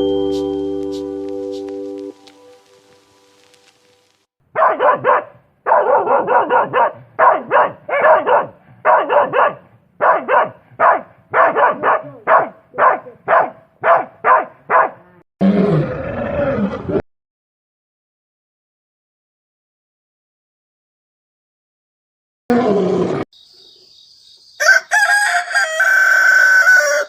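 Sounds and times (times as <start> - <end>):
dog barking rapidly: 4.5 - 15.1.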